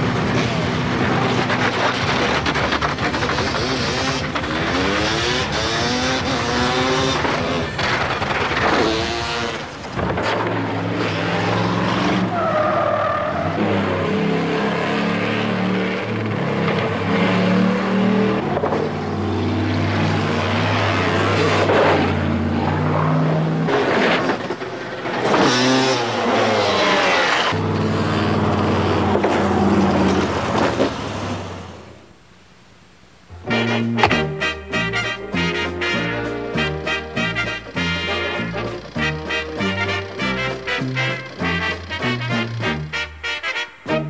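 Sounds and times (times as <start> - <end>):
vehicle engines revving: 0.0 - 31.9, 33.3 - 43.2
tire squeal: 10.9 - 14.2.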